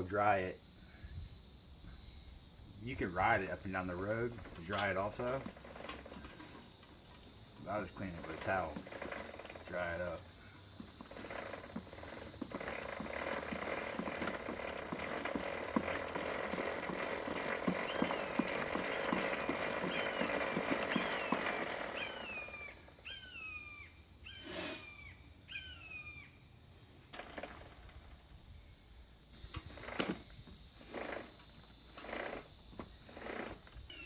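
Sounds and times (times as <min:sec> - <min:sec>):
high insect buzz: 0:00.0 - 0:34.0
bird calling: 0:04.7 - 0:26.4, 0:33.3 - 0:34.0
towel rubbing bike chain: 0:11.0 - 0:22.4.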